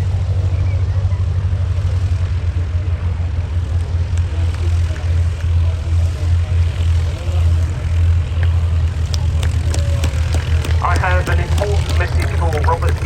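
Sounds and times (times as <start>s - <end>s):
propeller aircraft engines droning: 0.0s - 13.0s.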